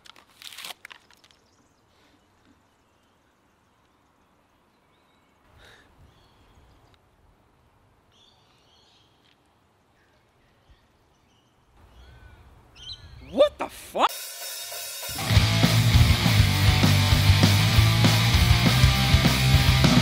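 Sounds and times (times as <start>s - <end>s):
brief rustle: 0.0s - 1.5s
faint bird chirps: 8.1s - 13.5s.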